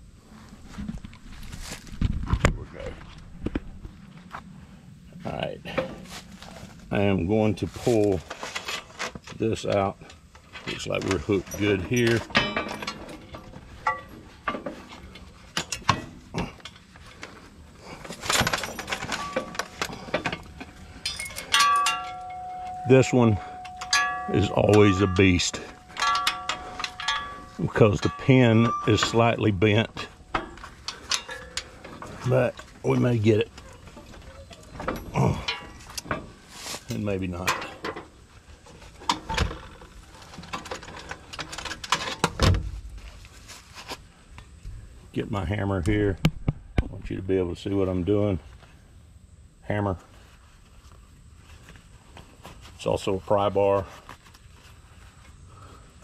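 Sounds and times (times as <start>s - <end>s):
metal clinks and knocks: 8.2s - 43.0s
ringing metal clang: 11.4s - 14.7s, 18.3s - 32.6s, 33.9s - 36.2s.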